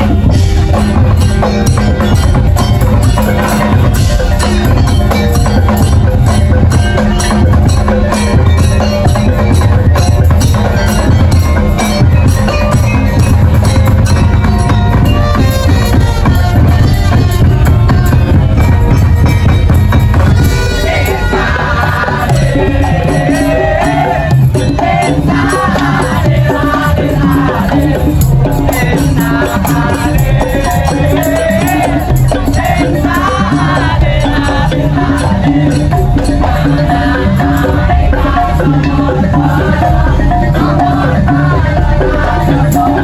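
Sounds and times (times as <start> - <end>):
drums and percussion beat: 0.0 - 43.0.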